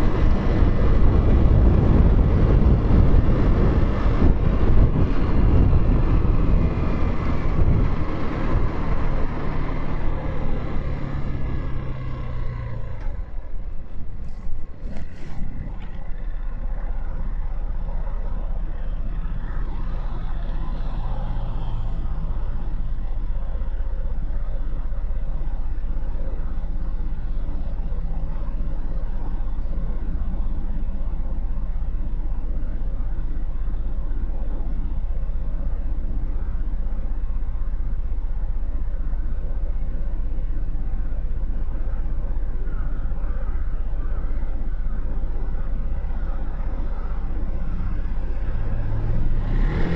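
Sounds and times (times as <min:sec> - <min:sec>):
motorcycle engine idling: 0:21.9 - 0:49.2.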